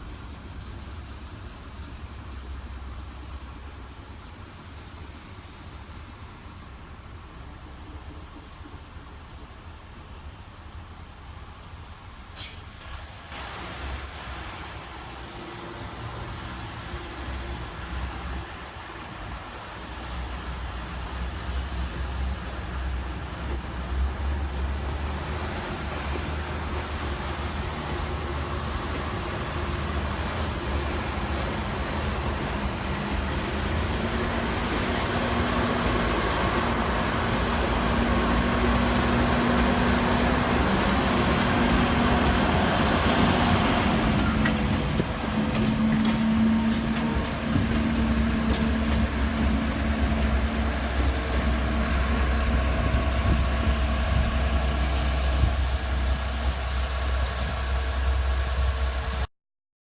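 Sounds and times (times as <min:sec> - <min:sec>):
freight train rumbling on track: 0:00.0 - 0:59.3.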